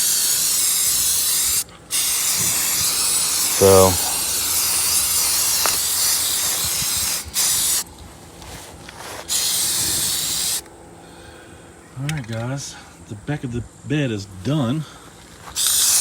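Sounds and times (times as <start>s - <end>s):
aerosol can spraying: 0.0s - 7.8s, 9.2s - 10.6s, 15.5s - 16.0s.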